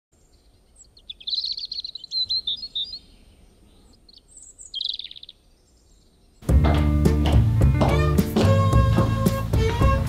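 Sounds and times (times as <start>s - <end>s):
songbird trilling: 0.3s - 6.4s.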